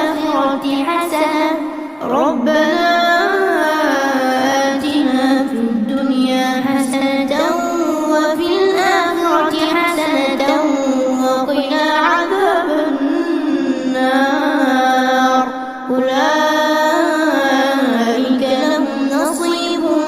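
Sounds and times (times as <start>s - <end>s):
person reciting melodically: 0.0s - 20.0s
person breathing: 15.5s - 15.9s.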